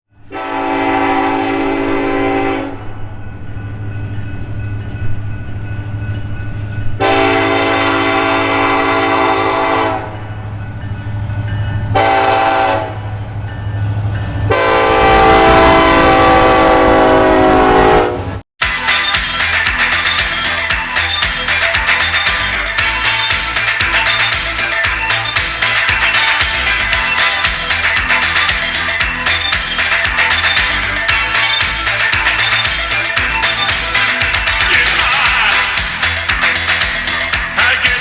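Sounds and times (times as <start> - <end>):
train rumbling past: 0.1 - 38.0
locomotive air horn blasts: 0.2 - 3.0, 7.0 - 10.2, 12.0 - 13.2, 14.5 - 18.4.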